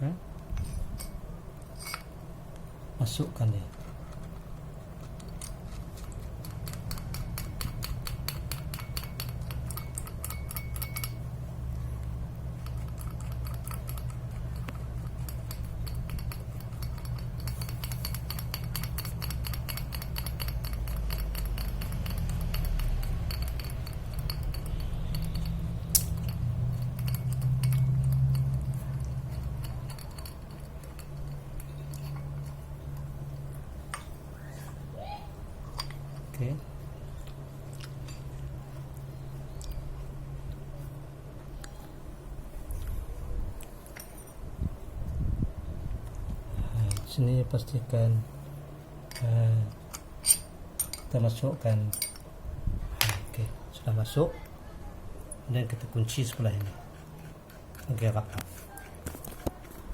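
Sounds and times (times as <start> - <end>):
low hum: 0.0 - 51.3
rapid light clicking of metal parts: 0.4 - 34.2, 46.1 - 47.9, 49.0 - 52.3, 55.2 - 59.9.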